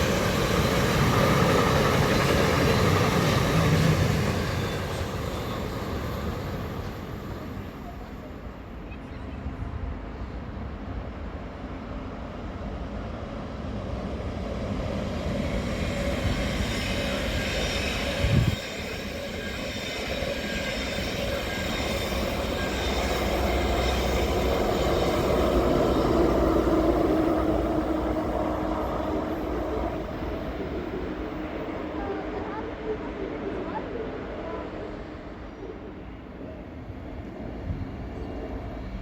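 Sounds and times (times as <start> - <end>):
train running on tracks: 0.0 - 39.0
high wheel squeal: 15.6 - 27.2.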